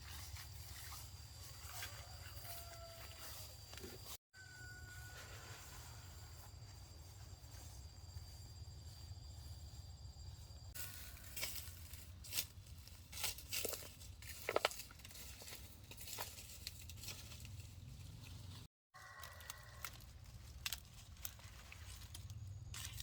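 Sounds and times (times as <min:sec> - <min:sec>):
high insect drone: 0:00.1 - 0:12.0
dry leaves rustling and crackling: 0:10.8 - 0:23.0.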